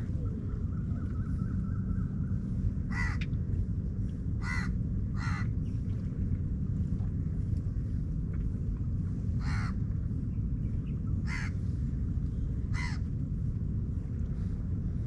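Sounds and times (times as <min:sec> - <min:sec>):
steady low rumble: 0:00.0 - 0:15.0
crow calling: 0:02.9 - 0:03.3, 0:04.4 - 0:05.5, 0:09.4 - 0:09.8, 0:11.2 - 0:11.6, 0:12.7 - 0:13.0.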